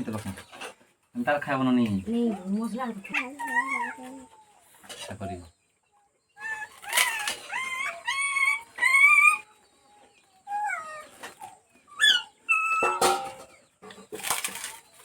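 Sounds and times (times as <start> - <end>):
high-pitched animal calls: 3.0 - 4.6, 6.4 - 9.6, 10.4 - 13.2.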